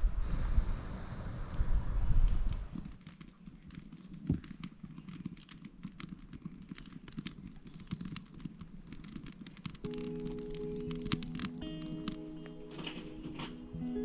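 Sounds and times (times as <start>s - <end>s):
campfire crackling: 0.8s - 14.0s.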